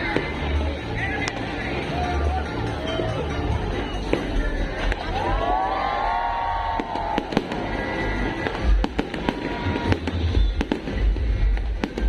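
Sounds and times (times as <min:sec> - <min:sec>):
fireworks bangs and crackles: 0:00.0 - 0:01.7, 0:04.0 - 0:05.4, 0:06.3 - 0:12.0
fireworks deep booms: 0:06.7 - 0:12.0.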